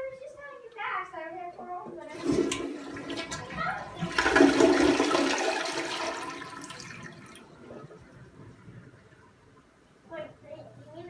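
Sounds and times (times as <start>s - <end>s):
toilet flushing: 2.0s - 9.4s.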